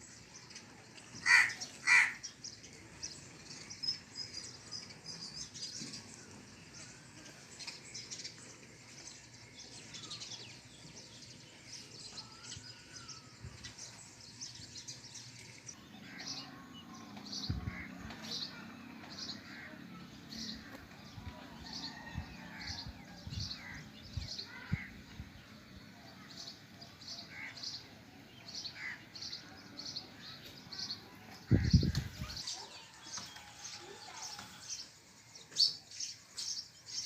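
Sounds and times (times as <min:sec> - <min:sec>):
loud bird calls: 0:01.1 - 0:02.4, 0:15.7 - 0:25.2, 0:26.1 - 0:37.0.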